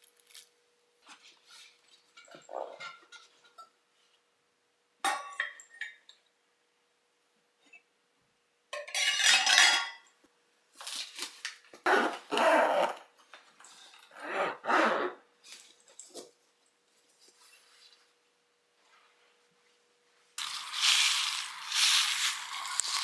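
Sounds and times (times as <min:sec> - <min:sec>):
utensils and dishes clinking: 0:08.8 - 0:10.1.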